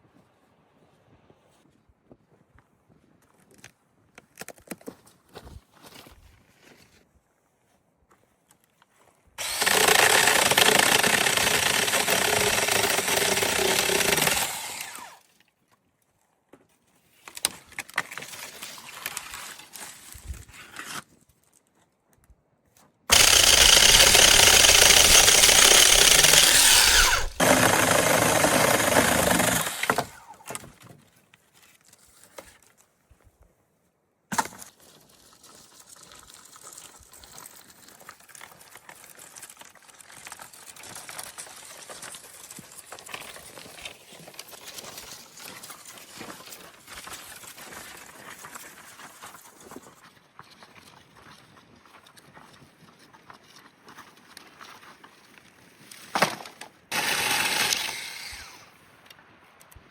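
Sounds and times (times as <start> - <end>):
power tool running: 9.4 - 15.2, 23.1 - 30.4, 56.9 - 58.7.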